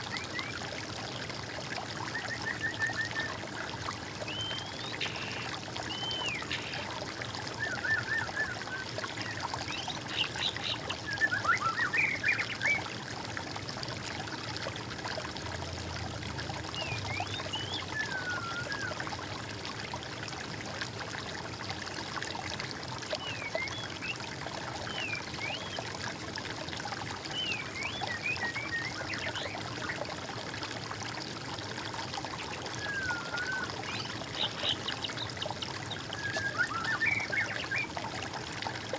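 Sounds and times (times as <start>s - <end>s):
water trickling over stones: 0.0s - 38.9s
songbirds calling: 4.3s - 7.0s, 7.6s - 12.9s, 16.7s - 18.9s, 32.7s - 38.0s.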